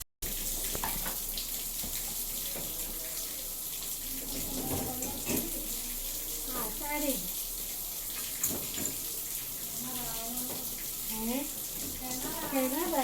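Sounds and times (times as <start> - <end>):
water splashing in washing machine: 0.2 - 13.0.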